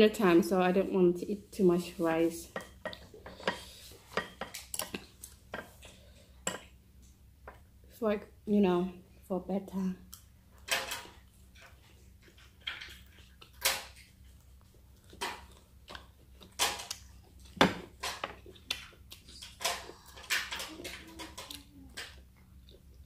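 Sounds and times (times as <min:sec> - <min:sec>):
chewing with wet mouth clicks: 0:11.2 - 0:17.6, 0:18.3 - 0:20.1.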